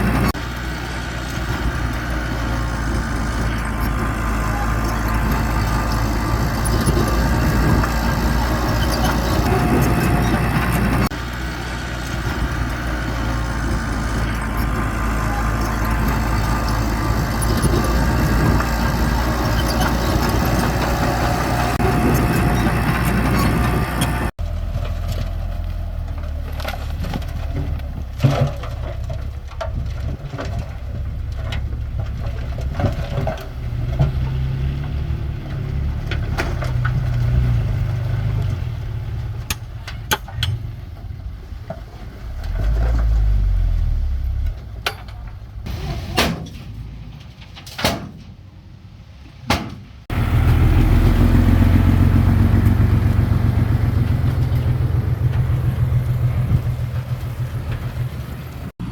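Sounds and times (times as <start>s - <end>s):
bulldozer diesel engine running: 0.0s - 47.4s, 50.1s - 58.9s
metal clanks and knocks: 2.5s - 11.2s, 26.1s - 37.5s, 39.3s - 48.5s.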